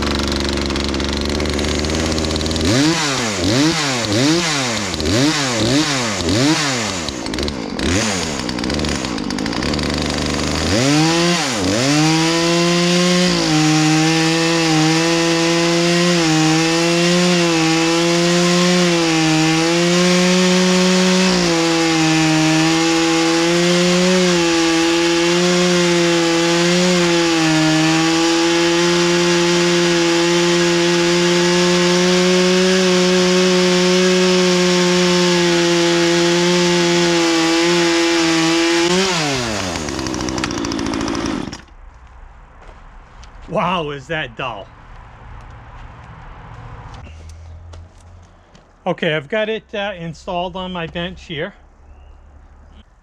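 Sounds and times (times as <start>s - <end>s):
chainsaw cutting wood: 0.0s - 41.8s.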